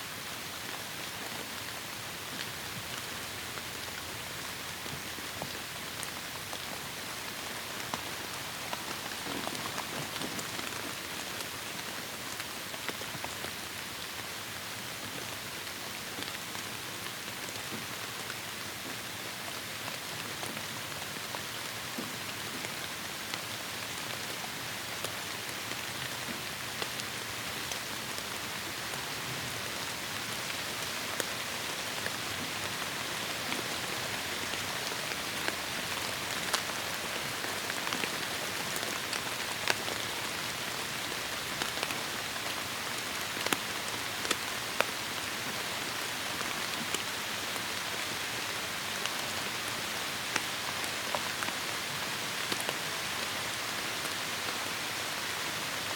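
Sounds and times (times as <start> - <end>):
heavy rain in a forest: 0.0 - 55.9.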